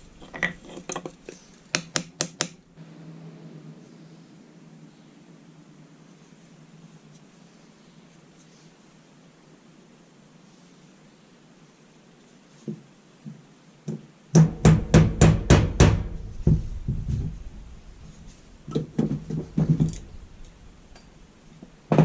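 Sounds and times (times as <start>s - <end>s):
hammer striking hard surface: 14.4s - 17.4s.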